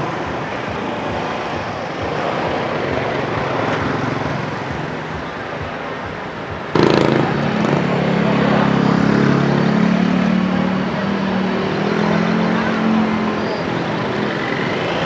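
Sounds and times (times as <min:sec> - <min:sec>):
motorbikes and cars passing: 0:00.0 - 0:15.0
loud engine: 0:06.7 - 0:15.0.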